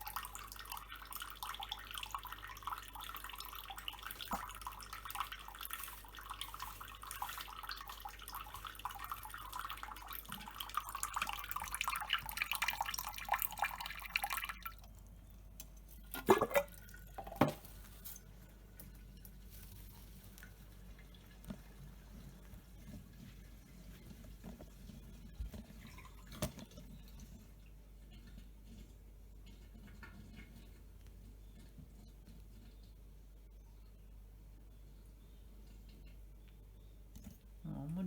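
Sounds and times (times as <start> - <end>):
water splashing and dripping: 0.0 - 22.9.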